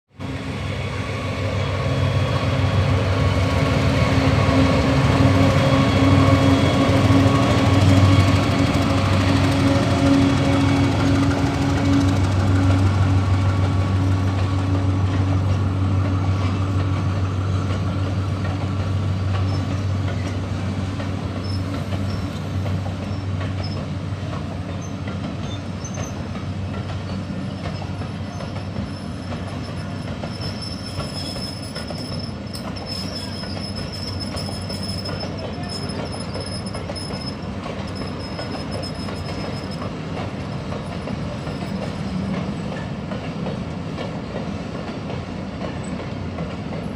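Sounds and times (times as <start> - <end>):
train wagons rumbling: 0.2 - 46.9
high-pitched wheel squeal: 27.7 - 39.9.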